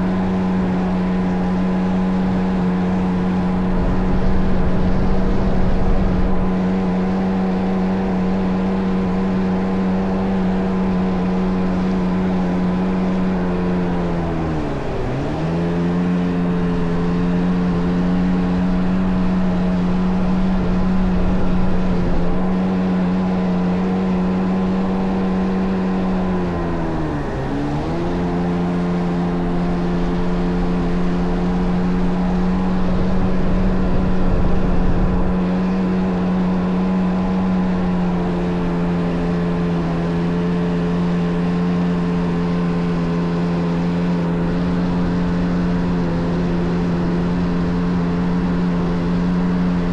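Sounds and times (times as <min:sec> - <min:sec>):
jet ski engine running: 0:00.0 - 0:49.9.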